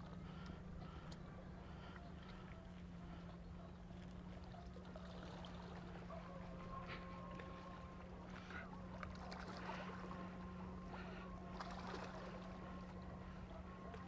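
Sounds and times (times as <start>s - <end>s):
low hum: 0.0s - 14.0s
water lapping and splashing: 0.0s - 14.0s.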